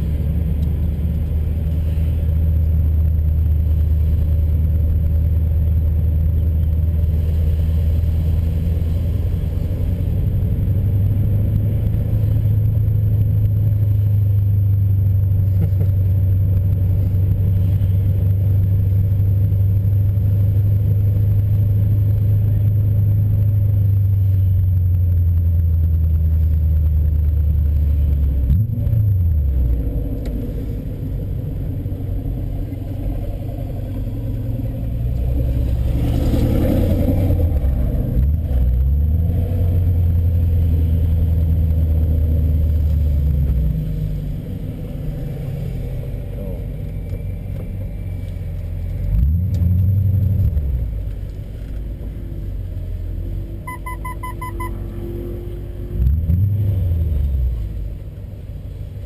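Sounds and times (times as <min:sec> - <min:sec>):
car engine rumble from inside cabin: 0:00.0 - 0:59.0
electronic beeps: 0:53.7 - 0:54.8.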